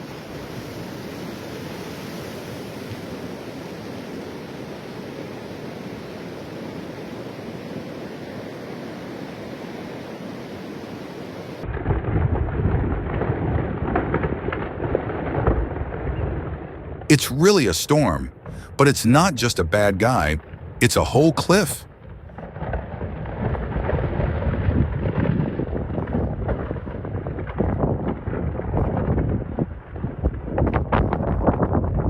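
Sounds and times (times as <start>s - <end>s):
gusting wind and rain: 0.0s - 16.1s, 22.6s - 32.0s
heavy rain hiss: 17.1s - 21.8s.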